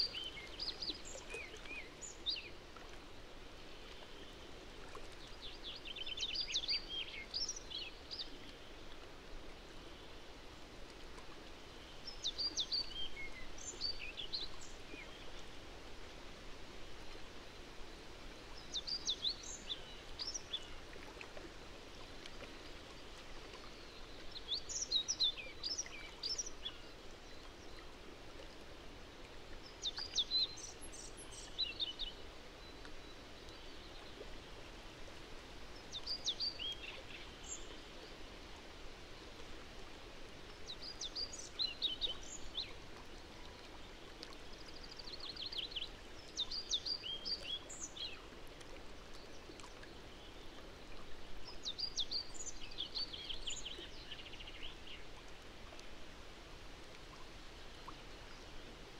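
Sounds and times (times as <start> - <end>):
songbird singing: 0.0 - 2.6, 12.0 - 15.3, 35.8 - 38.1, 40.5 - 42.8, 43.4 - 48.3, 51.4 - 55.1
steady outdoor hiss: 0.0 - 58.9.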